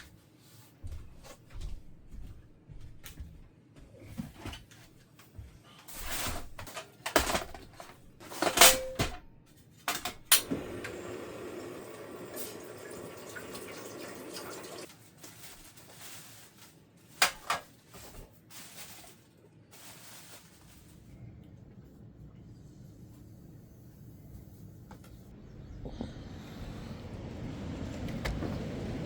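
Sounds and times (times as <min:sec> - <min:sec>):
water running: 0:10.4 - 0:14.9.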